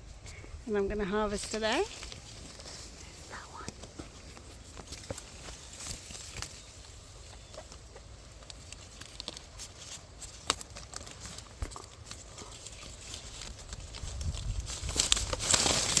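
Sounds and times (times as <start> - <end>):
leaves and twigs rustling: 0.0 - 16.0
low wind rumble: 13.6 - 15.4.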